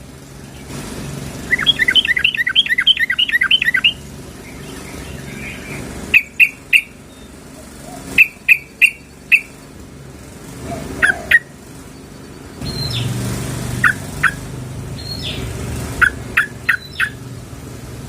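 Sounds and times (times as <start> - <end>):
bulbul chattering chirps: 0.2 - 9.8, 10.6 - 17.3
sharp short bird calls: 1.4 - 9.6, 15.0 - 17.2.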